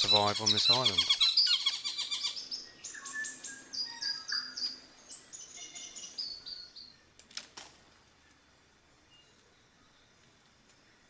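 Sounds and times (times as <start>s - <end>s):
birds singing: 0.0s - 7.1s.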